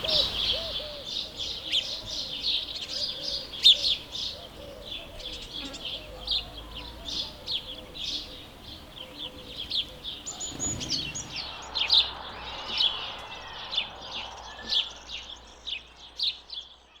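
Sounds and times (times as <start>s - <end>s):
sparrow chirping: 0.0s - 16.8s.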